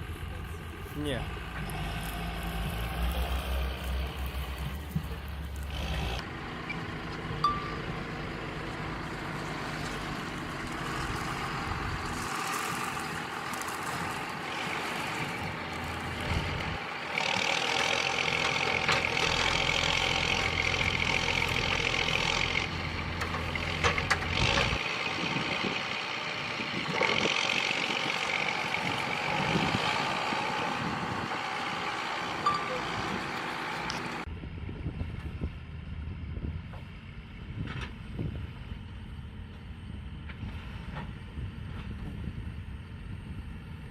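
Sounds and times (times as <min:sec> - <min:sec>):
machine engine running: 0:00.0 - 0:34.3.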